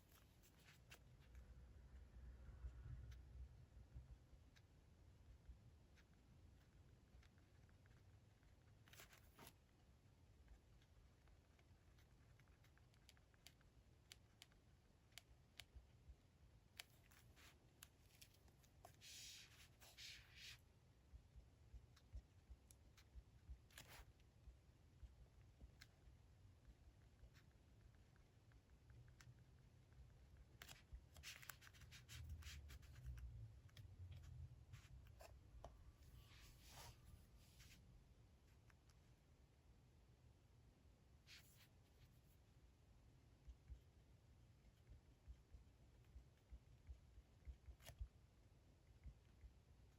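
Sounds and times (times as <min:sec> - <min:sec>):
pen scratching on paper: 0:30.6 - 0:33.0.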